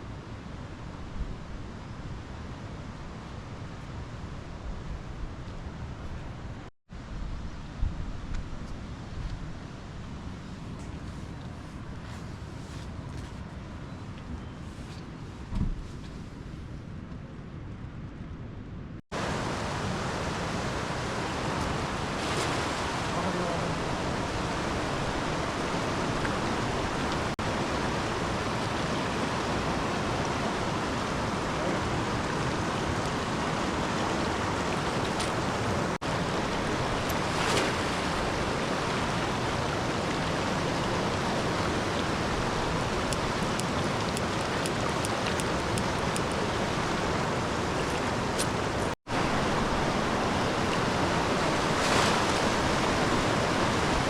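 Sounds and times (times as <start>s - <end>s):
river water rushing: 19.2s - 54.0s.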